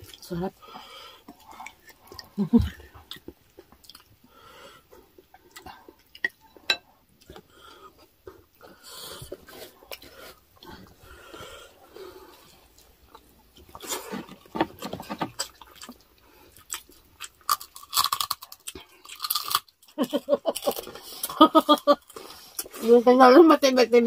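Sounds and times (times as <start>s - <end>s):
chewing crunchy food: 0.0s - 23.0s.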